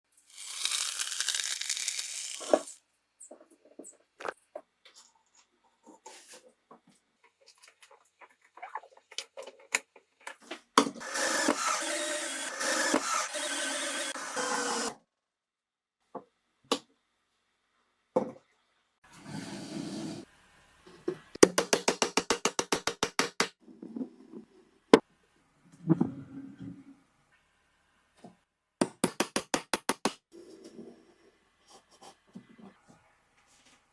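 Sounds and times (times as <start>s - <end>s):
noisy power tool running: 11.0s - 14.9s.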